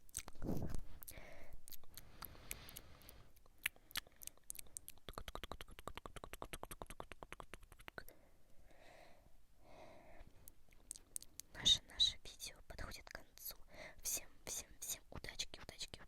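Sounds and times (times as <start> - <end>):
breathy whisper-like sounds: 10.9 - 16.0.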